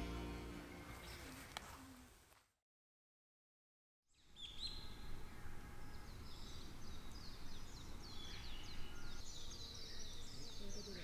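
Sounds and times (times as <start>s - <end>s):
small birds chirping: 4.1s - 11.0s.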